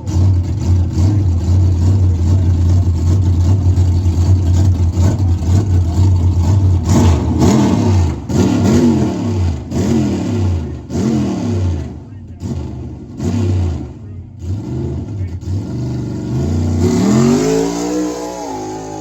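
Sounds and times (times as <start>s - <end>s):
loud truck engine revving: 0.0s - 19.0s.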